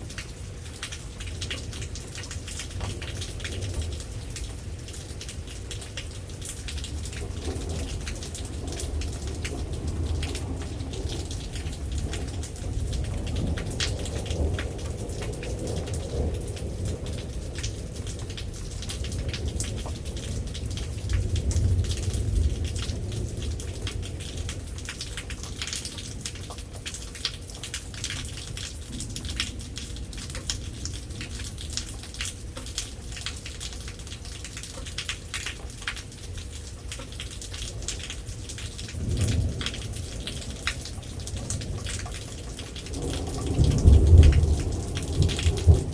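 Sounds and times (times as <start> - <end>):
heavy rain on hard surface: 0.0 - 45.9
thunder rumbling: 6.9 - 24.7, 38.8 - 45.9.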